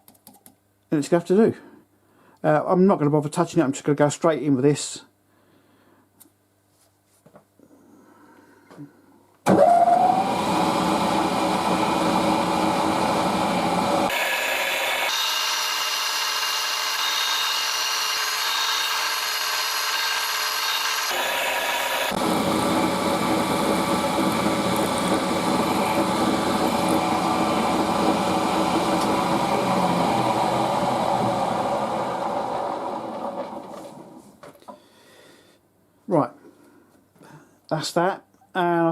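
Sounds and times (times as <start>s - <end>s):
drill boring into aluminium: 9.5s - 33.7s
milling spindle whine: 9.8s - 34.2s.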